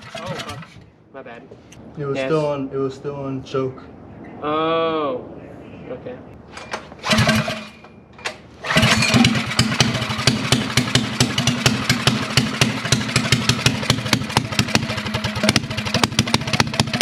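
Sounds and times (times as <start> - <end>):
minibike engine starting and running: 0.0 - 0.8, 6.6 - 17.0.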